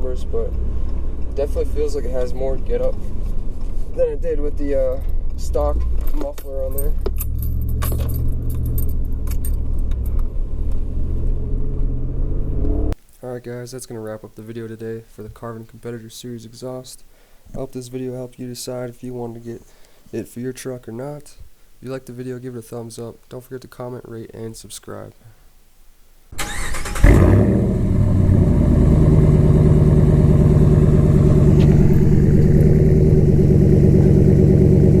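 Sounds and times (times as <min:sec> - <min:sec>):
engine and exhaust drone: 0:00.0 - 0:03.8, 0:06.7 - 0:13.0, 0:27.0 - 0:35.0
road noise: 0:00.0 - 0:13.0, 0:26.4 - 0:35.0
light jingling rattles: 0:06.0 - 0:09.6
engine idling: 0:27.8 - 0:35.0.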